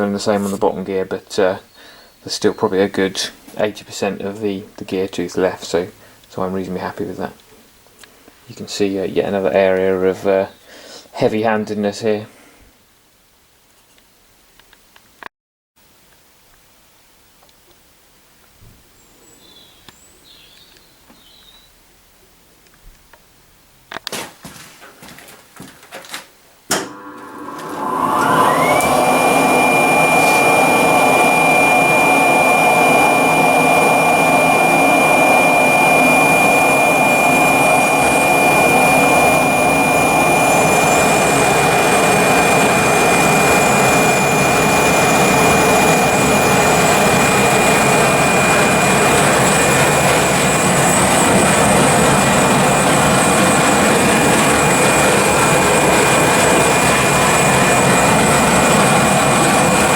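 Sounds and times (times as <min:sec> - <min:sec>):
power tool motor whining: 0:26.7 - 0:59.9.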